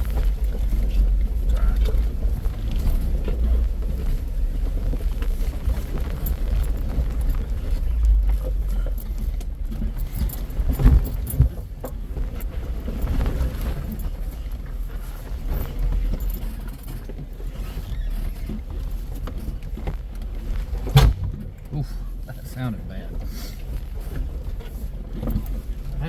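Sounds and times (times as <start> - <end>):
off-road vehicle engine rumble: 0.0 - 26.0
suspension knocks and rattles: 0.0 - 26.0
heavy thump: 20.8 - 22.0.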